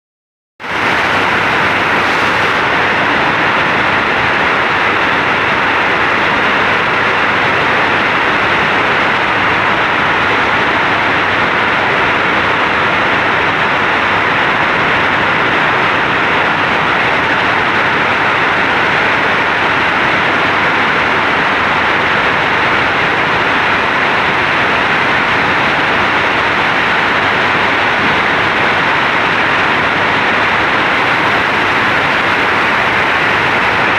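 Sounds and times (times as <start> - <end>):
heavy rain pouring: 0.6 - 33.9.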